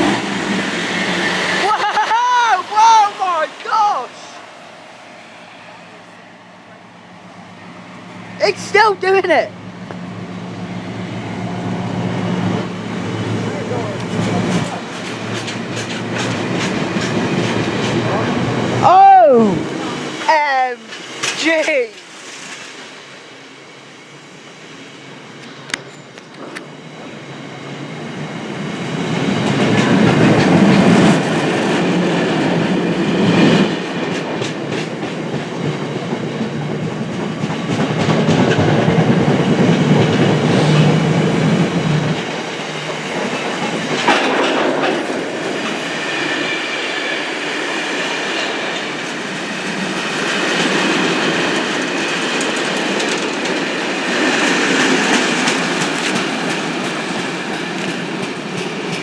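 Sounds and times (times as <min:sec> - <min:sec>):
freight train rumble: 0:00.0 - 0:59.0
wheels clattering over rail joints: 0:13.5 - 0:18.4, 0:29.4 - 0:46.4, 0:47.1 - 0:59.0.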